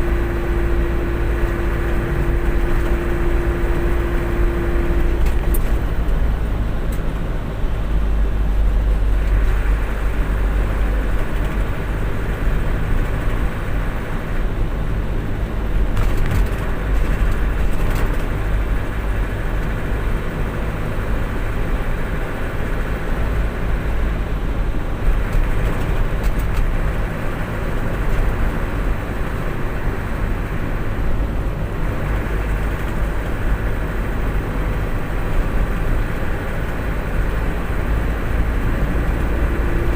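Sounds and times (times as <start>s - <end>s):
vehicle engine rumble and road noise: 0.0s - 39.9s.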